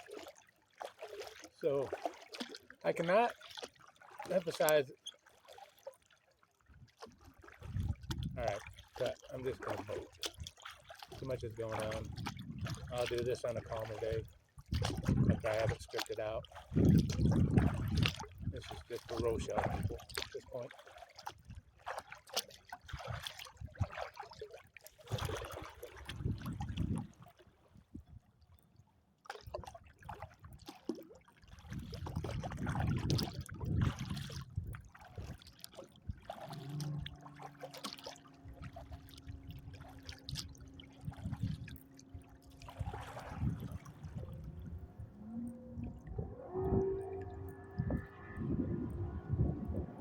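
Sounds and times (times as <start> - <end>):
water splashing around kayak: 0.0 - 50.0
wind gusting on microphone: 7.7 - 8.6, 11.8 - 13.1, 14.7 - 15.7, 16.7 - 18.6, 26.1 - 27.1, 32.0 - 34.8, 41.0 - 41.8, 42.8 - 50.0
low hum of held tones: 38.2 - 50.0.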